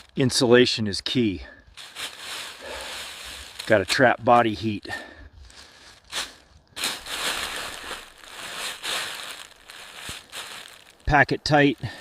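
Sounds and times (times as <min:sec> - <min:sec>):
leaves crunching: 0:01.7 - 0:04.6, 0:05.4 - 0:12.0
leaves rustling: 0:01.7 - 0:12.0.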